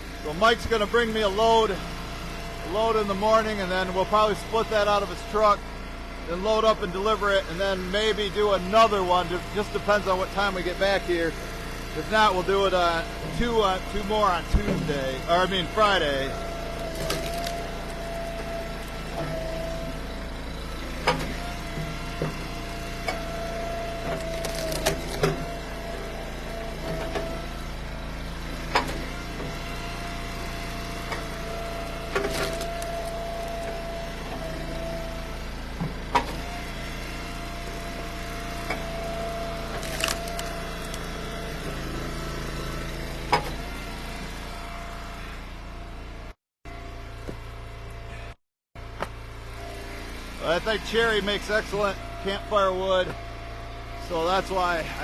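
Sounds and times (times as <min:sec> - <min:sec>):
wood splitter humming: 0:00.0 - 0:55.0
wood rounds cracking apart: 0:16.8 - 0:18.1, 0:24.2 - 0:25.2, 0:32.2 - 0:33.6, 0:39.7 - 0:41.1.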